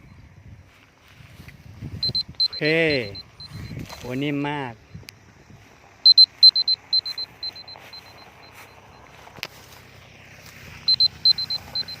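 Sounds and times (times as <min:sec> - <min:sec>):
electronic beeper short beeps: 0:02.0 - 0:04.1, 0:06.0 - 0:09.1, 0:10.9 - 0:12.0.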